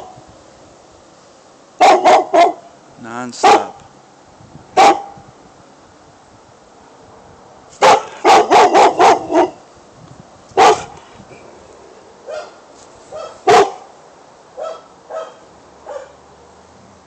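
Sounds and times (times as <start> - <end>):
dog barking: 1.8 - 2.6, 3.4 - 3.8, 4.8 - 5.2, 7.8 - 9.6, 10.6 - 11.0, 12.3 - 13.9, 14.6 - 16.2.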